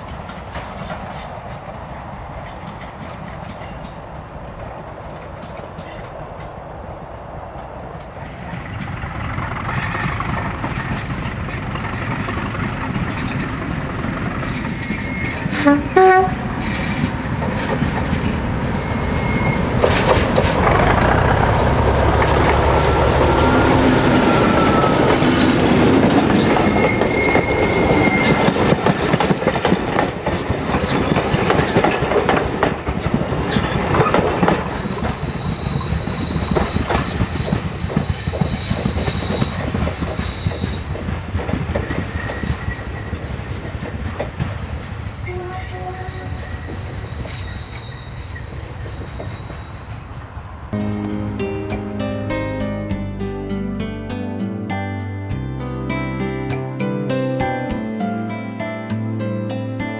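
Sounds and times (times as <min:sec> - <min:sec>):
diesel locomotive passing: 0:00.0 - 0:35.4, 0:50.4 - 0:59.9
train wheels: 0:00.0 - 0:50.6
locomotive horn blasts: 0:15.5 - 0:16.7.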